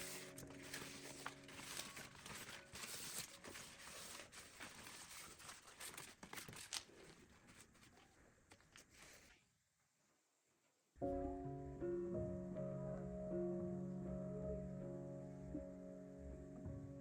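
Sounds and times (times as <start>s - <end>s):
faint rustling and crinkling: 0.0s - 10.9s.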